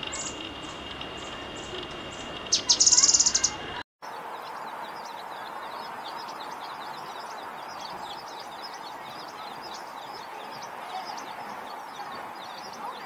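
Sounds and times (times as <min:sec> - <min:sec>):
rapid high birdsong: 0:00.0 - 0:13.0.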